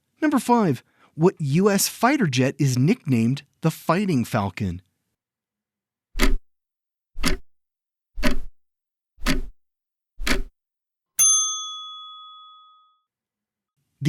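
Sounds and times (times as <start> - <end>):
clock ticking: 6.2 - 6.4, 7.2 - 7.5, 8.2 - 8.5, 9.2 - 9.6, 10.2 - 10.5
bright bell ding: 11.2 - 13.0.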